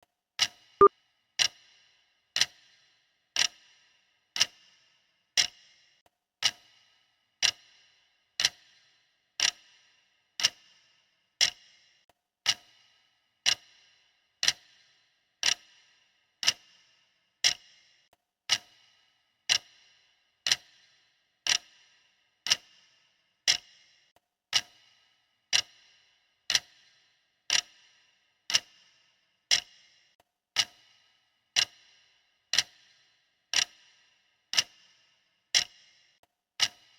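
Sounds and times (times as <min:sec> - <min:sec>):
clock ticking: 0:33.5 - 0:33.8.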